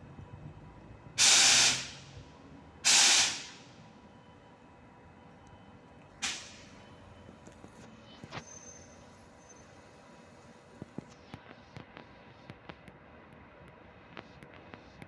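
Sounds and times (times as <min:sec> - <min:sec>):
compressed air hissing: 0:01.2 - 0:02.0, 0:02.8 - 0:03.6.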